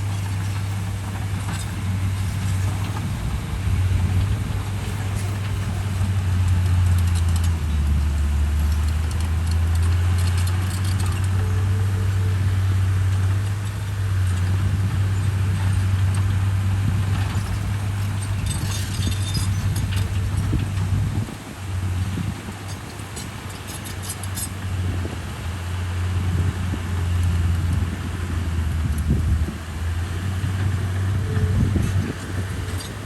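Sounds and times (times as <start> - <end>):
bulldozer diesel engine drone: 0.0 - 33.0
clicks and rattles: 4.1 - 12.1, 15.5 - 21.3.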